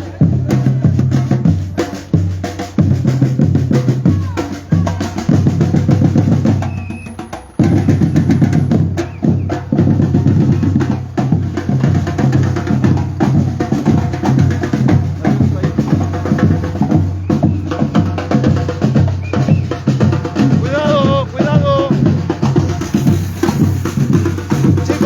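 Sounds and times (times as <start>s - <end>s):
bass drums: 0.0s - 25.0s
snare drums: 0.0s - 25.0s.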